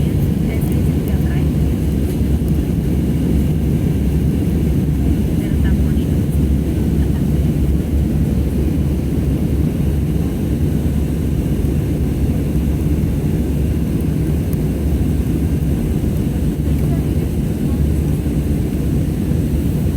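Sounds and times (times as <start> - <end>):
jet engine cabin rumble: 0.0 - 19.9.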